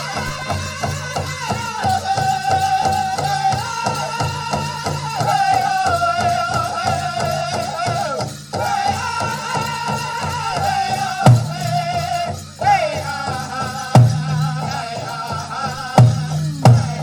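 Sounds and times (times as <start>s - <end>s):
fast steady drumbeat: 0.0s - 17.0s
high wavering voices singing: 13.6s - 17.0s.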